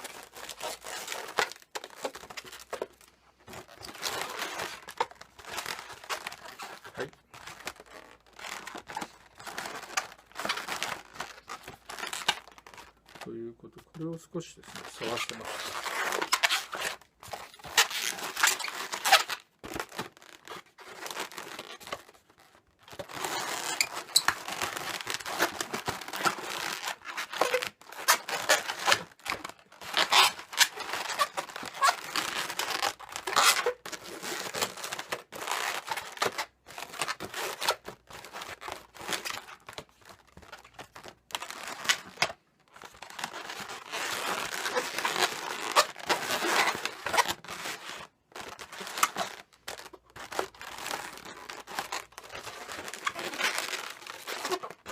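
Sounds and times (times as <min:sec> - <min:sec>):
balloons rubbing and squeaking: 0:00.0 - 0:54.9.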